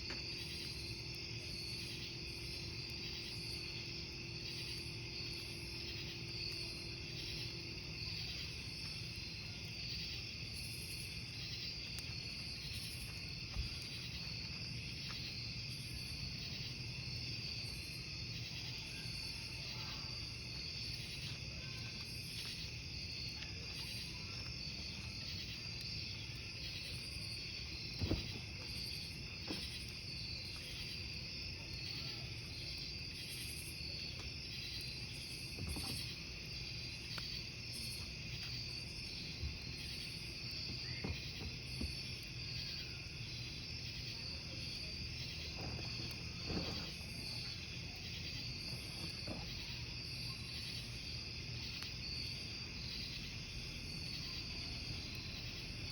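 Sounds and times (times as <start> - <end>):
campfire crackling: 0.0 - 55.9
crickets chirping: 0.0 - 55.9
fire pops: 10.4 - 16.2, 20.6 - 50.8
low rush of fire: 24.8 - 32.0, 33.0 - 50.8.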